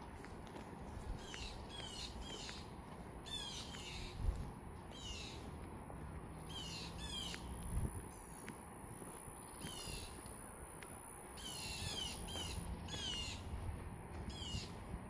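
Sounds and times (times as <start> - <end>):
birds calling: 0.9 - 5.6, 6.4 - 8.6, 9.3 - 10.4, 11.4 - 14.9.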